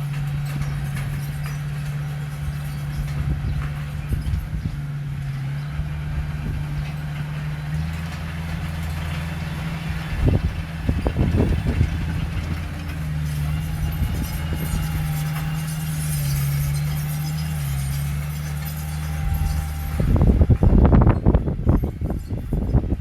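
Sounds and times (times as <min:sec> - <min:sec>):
metal clanks and knocks: 0:00.0 - 0:05.7, 0:06.4 - 0:22.9
diesel engine running: 0:00.0 - 0:23.0.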